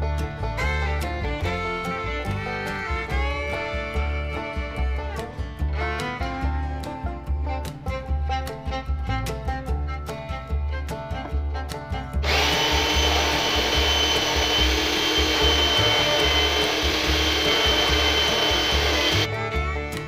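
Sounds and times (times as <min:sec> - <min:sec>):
background music with beat: 0:00.0 - 0:20.0
power tool whining: 0:12.2 - 0:19.3.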